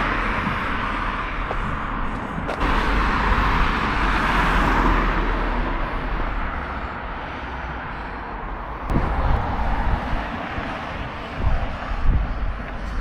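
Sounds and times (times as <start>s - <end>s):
vehicle passing close by: 0.0s - 7.9s.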